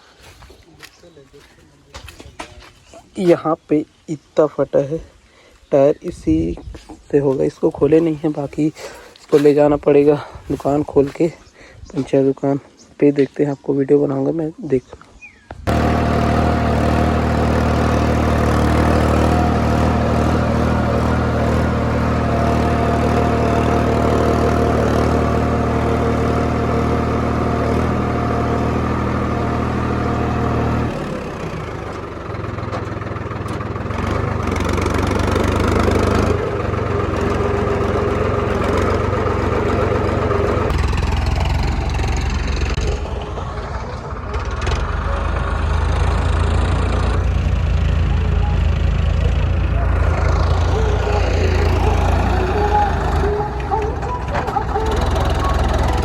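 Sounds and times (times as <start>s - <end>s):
tractor engine running: 15.6s - 56.0s.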